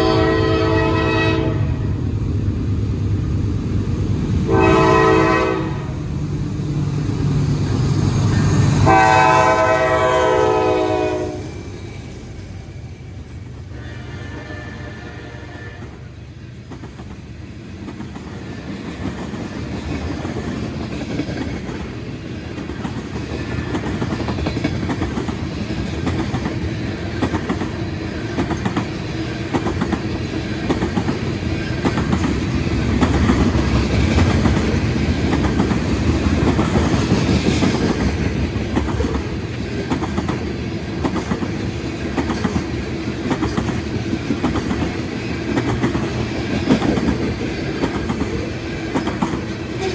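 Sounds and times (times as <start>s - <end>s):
heavy train rumble: 0.0s - 49.9s
freight train wheels clicking: 15.3s - 49.9s.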